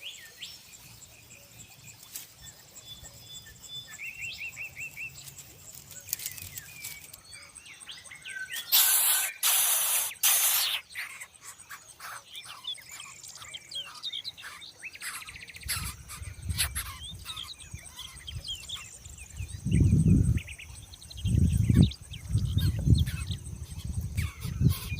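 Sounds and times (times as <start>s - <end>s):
small birds chirping: 0.0s - 24.9s
loud hissing noise: 8.6s - 10.9s.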